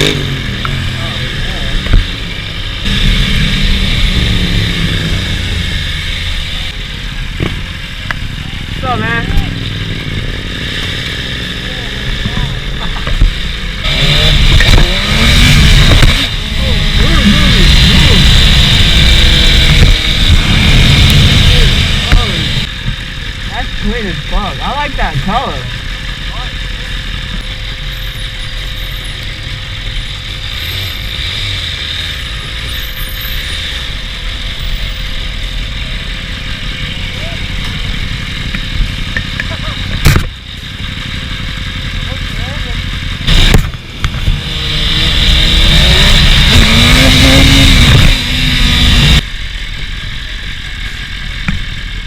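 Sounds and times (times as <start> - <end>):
motorcycle engine rumble: 0.0 - 52.0
wind and road noise: 0.0 - 52.0.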